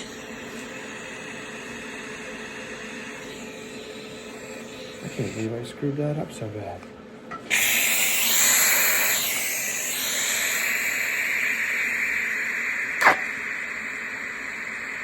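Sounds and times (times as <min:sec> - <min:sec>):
electric arc welding sizzle: 0:07.5 - 0:15.0
welding arc pop: 0:13.0 - 0:13.5.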